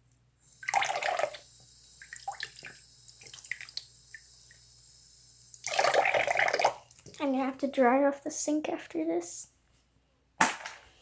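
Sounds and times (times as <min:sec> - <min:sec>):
water splashing in a sink: 0:00.5 - 0:07.3.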